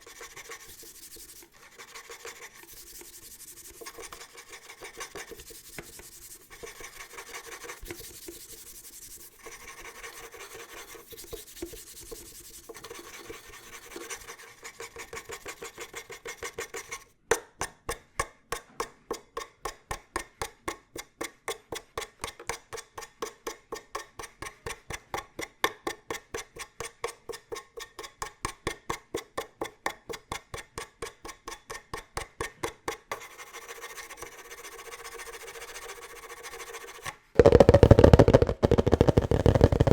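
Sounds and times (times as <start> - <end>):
scratching and rubbing on object: 0.0 - 17.1, 33.2 - 39.9
quick even tapping: 37.4 - 39.9.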